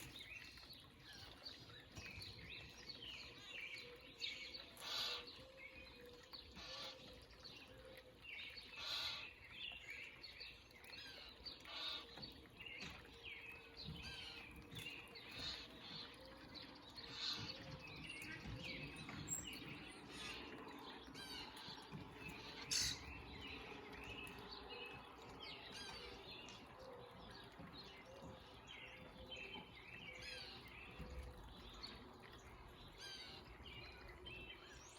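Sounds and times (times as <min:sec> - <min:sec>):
songbirds chirping: 0:00.0 - 0:34.9.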